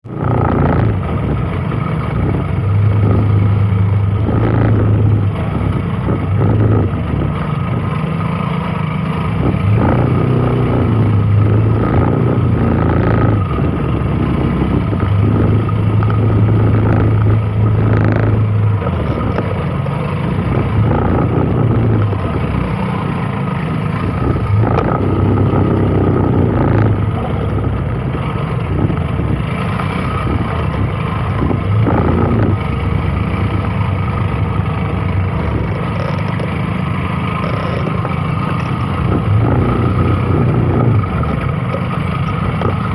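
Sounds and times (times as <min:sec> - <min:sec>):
vehicle engine exhaust hum: 0:00.0 - 0:42.9.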